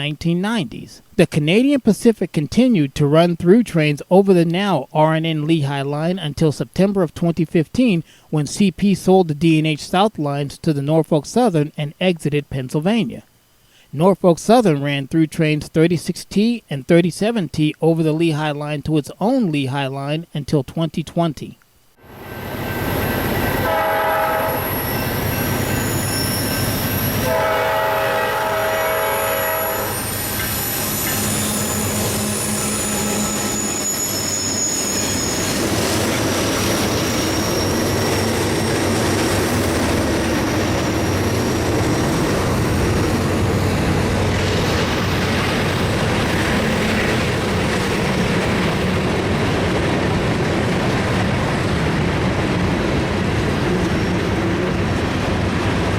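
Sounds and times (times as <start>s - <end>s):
train rail noise: 22.0s - 55.9s
high wheel squeal: 22.2s - 42.7s
locomotive horn blasts: 23.5s - 25.2s, 26.3s - 34.1s.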